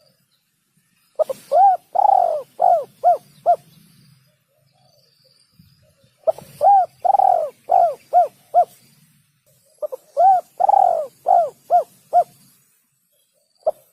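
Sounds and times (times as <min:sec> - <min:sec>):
dove cooing: 0:01.2 - 0:03.7, 0:06.2 - 0:08.8, 0:09.8 - 0:12.4.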